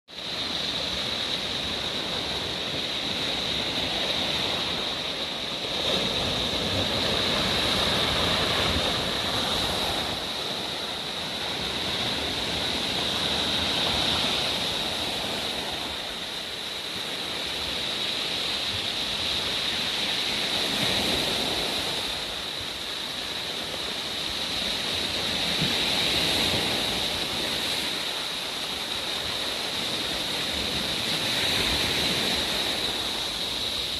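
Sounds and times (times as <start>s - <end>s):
surf washing onto shore: 0.1s - 33.9s
steady high hiss: 26.8s - 33.9s.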